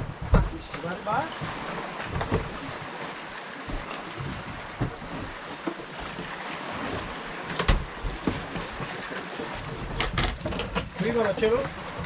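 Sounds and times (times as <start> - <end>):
knocks against boat hull: 0.0 - 0.6, 7.6 - 8.7
wind and water rushing: 0.0 - 12.0.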